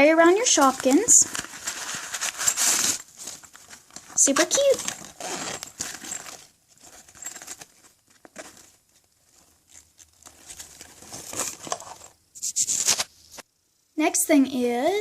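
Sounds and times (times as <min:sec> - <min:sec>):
plastic packaging crinkling: 0:00.0 - 0:13.1.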